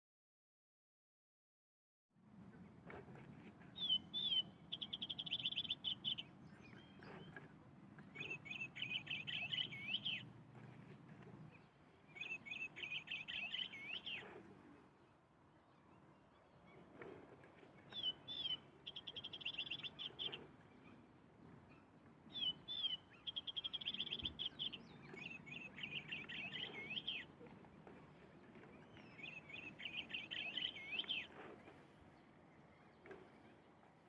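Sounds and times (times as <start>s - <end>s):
bird chirps and trills: 3.7s - 10.3s, 11.5s - 14.4s, 17.9s - 21.0s, 21.7s - 27.4s, 28.7s - 31.8s.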